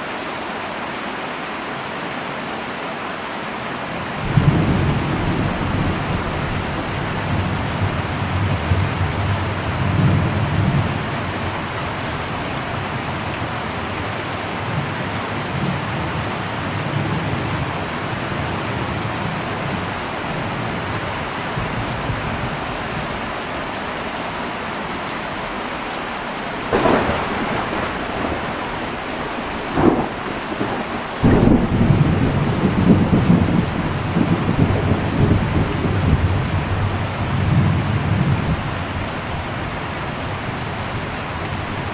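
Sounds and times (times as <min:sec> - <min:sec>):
heavy rain on metal roof: 0:00.0 - 0:41.9
thunder: 0:04.2 - 0:12.8, 0:26.6 - 0:39.5.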